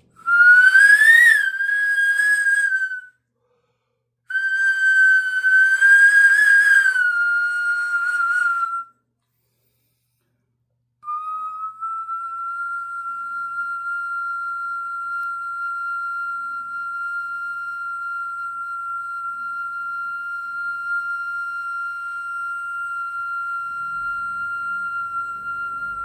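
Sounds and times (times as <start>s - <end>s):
stone flute high whistling note: 0.0s - 3.2s, 4.3s - 9.0s, 11.0s - 26.0s
low sound: 11.0s - 26.0s.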